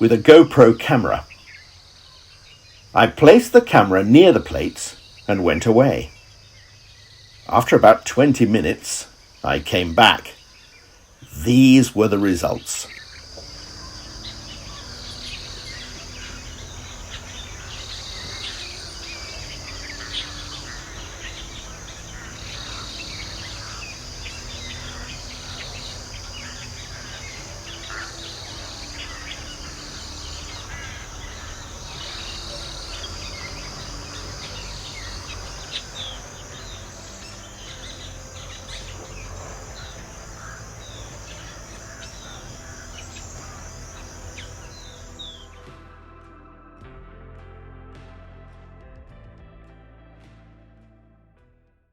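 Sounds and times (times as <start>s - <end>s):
bird chirps: 0.0s - 45.9s
insect chorus: 0.0s - 46.0s.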